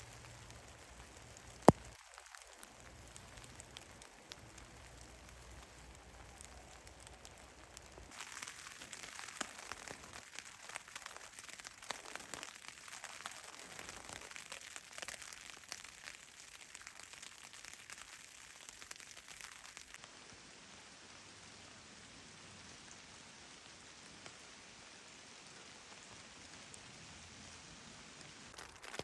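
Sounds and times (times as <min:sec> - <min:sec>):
raindrops ticking: 0:00.0 - 0:22.0
rain falling: 0:00.0 - 0:29.0.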